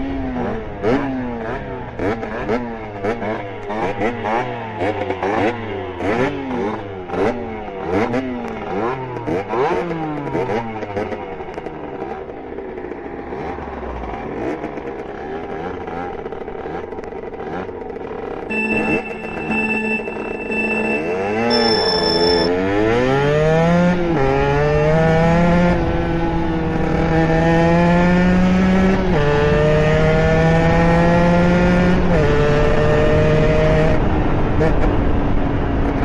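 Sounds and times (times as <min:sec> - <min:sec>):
two-stroke motorbike engine revving: 0:00.0 - 0:35.2.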